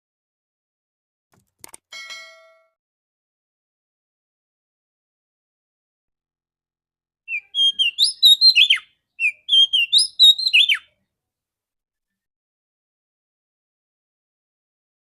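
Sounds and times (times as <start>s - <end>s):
magpie-robin whistled call: 7.3s - 11.0s.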